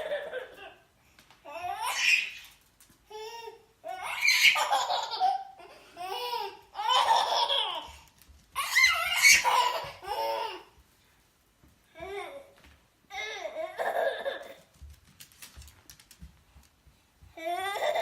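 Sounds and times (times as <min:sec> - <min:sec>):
baby laughing: 0:00.0 - 0:00.8, 0:03.1 - 0:10.7, 0:13.2 - 0:14.7.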